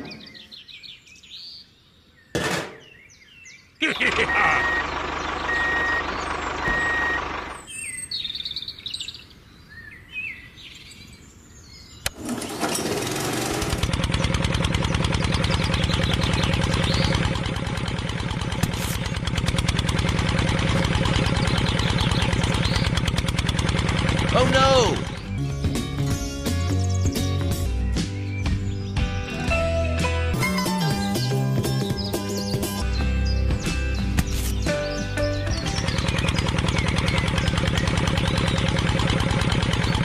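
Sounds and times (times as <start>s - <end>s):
birds chirping: 0.0s - 40.0s
vehicle engine running: 4.0s - 8.0s, 12.2s - 29.6s, 31.2s - 40.0s.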